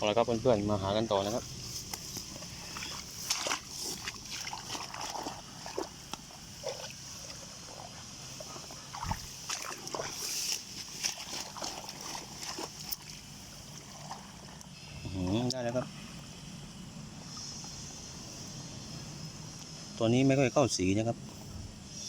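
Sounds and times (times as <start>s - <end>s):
shallow water sloshing and splashing: 1.2s - 14.8s.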